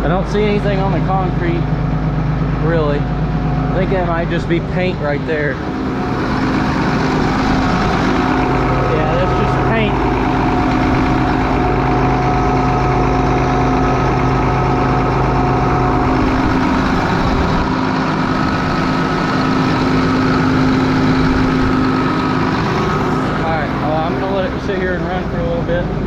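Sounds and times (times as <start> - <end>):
tractor diesel engine idling: 0.0 - 26.0.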